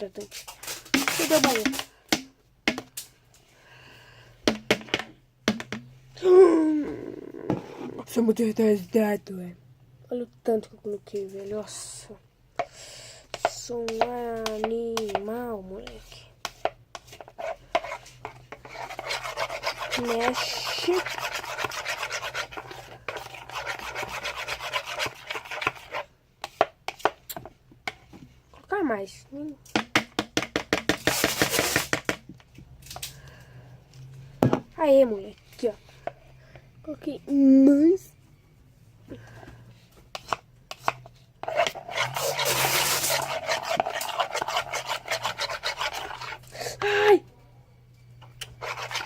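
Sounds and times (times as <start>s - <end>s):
spoon scraping a bowl: 15.8s - 27.1s, 31.0s - 32.0s, 40.1s - 46.5s, 48.4s - 49.0s.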